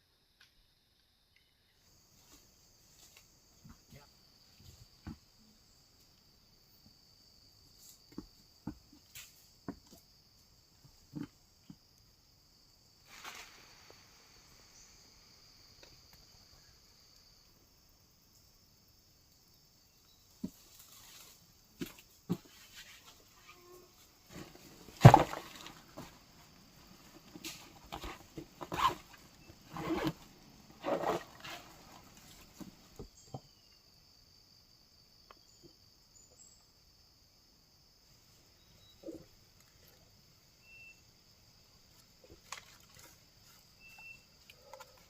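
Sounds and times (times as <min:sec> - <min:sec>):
irregular knocks and thuds: 0:03.6 - 0:05.3, 0:08.1 - 0:10.1
high insect buzz: 0:11.1 - 0:19.2, 0:19.8 - 0:35.6.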